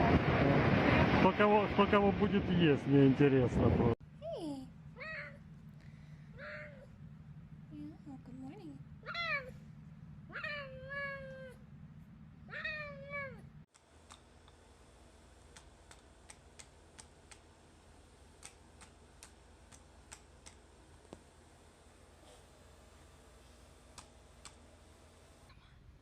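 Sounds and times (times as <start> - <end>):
cat meowing: 5.0 - 5.4, 6.4 - 6.9, 9.0 - 9.6, 10.3 - 11.6, 12.5 - 13.5
faint clicks: 18.4 - 21.2, 23.9 - 24.6.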